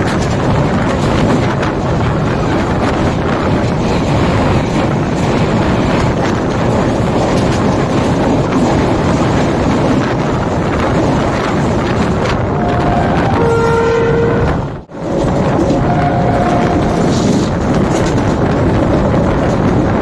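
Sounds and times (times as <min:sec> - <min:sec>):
rushing wind: 0:00.0 - 0:20.0
train wheels rumbling on rails: 0:00.0 - 0:20.0.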